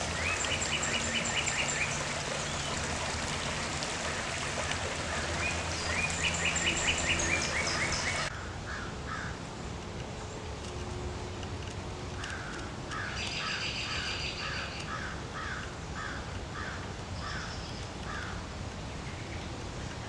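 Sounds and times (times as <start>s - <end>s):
outdoor background noise: 0.0s - 20.0s
bird calling in fast series: 0.1s - 9.3s.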